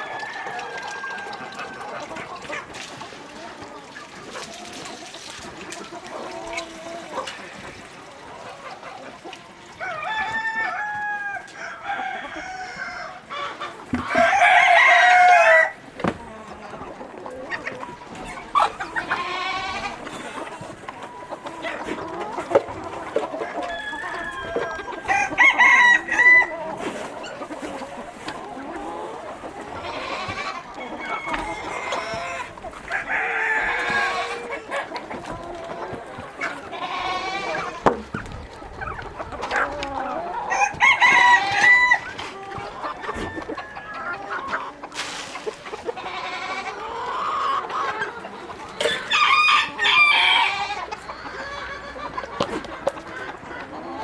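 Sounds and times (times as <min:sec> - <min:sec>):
chickens clucking: 0:00.0 - 0:54.0
rooster crowing loudly: 0:09.8 - 0:13.3, 0:14.1 - 0:15.8, 0:23.6 - 0:26.5, 0:30.3 - 0:32.4, 0:40.5 - 0:42.0, 0:48.9 - 0:50.7.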